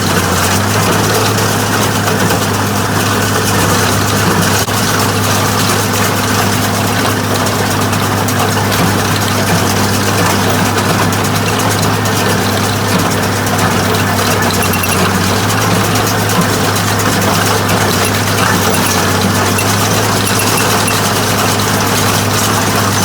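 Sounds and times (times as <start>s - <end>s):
tractor engine humming: 0.0s - 23.0s.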